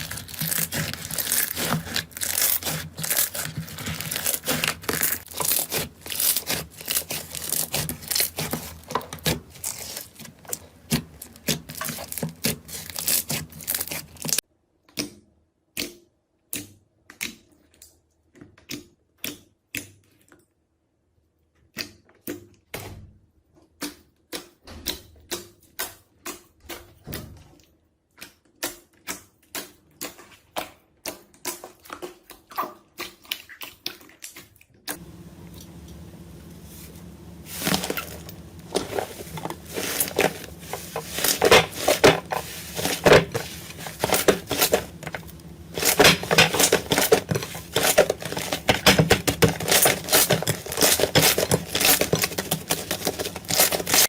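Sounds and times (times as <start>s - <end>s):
slime crackling and popping: 0.0s - 14.4s, 35.0s - 54.0s.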